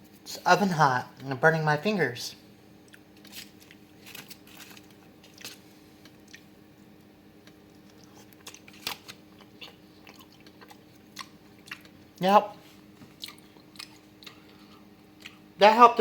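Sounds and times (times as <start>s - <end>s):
faint steady hum: 0.0s - 16.0s
person chewing crunchy pizza: 2.8s - 15.6s.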